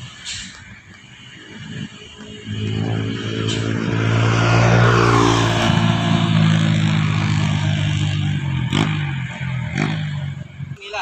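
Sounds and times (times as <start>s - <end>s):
truck engine running under load: 0.0s - 10.8s.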